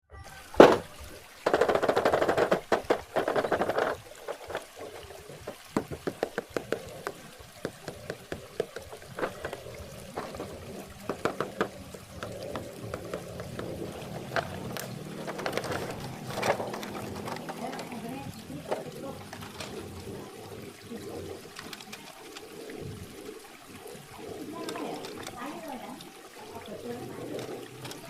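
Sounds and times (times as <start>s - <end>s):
packaging crackling: 0.6s - 25.4s
plastic clicks and taps: 1.4s - 18.0s.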